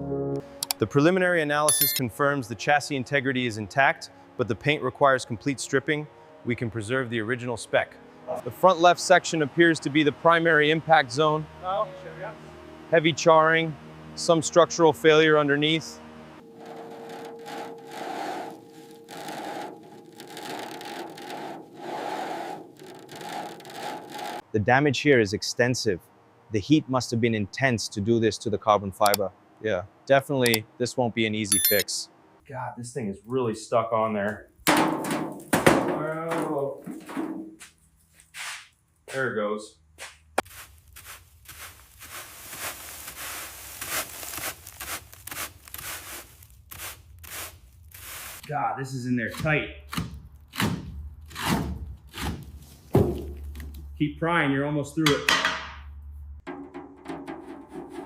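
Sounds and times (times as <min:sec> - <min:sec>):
hand scraping charred metal: 0:16.4 - 0:24.4, 0:40.5 - 0:48.5.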